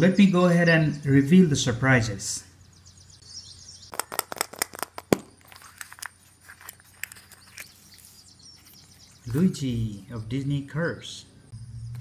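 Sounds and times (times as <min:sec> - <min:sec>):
wrapper crinkling: 0:03.9 - 0:08.9.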